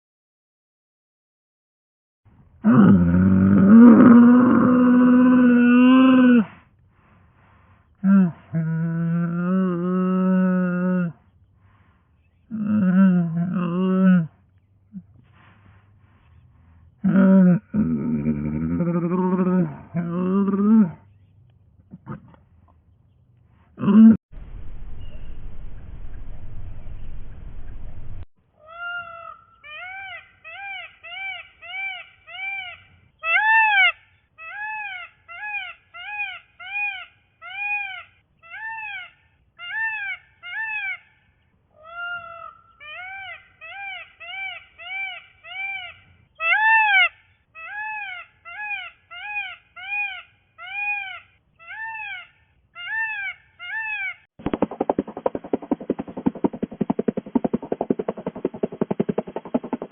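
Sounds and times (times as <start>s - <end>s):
rasping sound: 54.4s - 59.9s.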